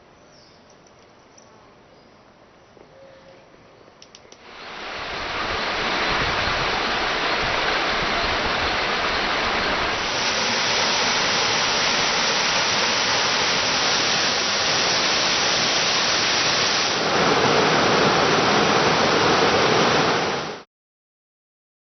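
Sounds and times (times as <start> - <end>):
water rushing: 4.4 - 20.7.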